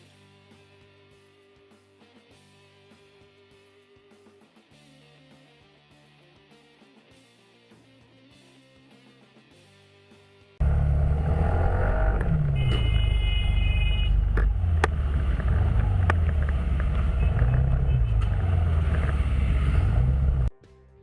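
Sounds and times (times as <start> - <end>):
car engine and road noise: 10.6 - 20.5.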